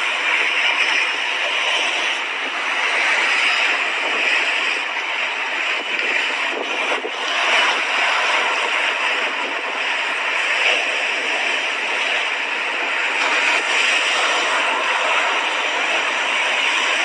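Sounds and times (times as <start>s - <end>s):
waves washing onto beach: 0.0s - 17.0s.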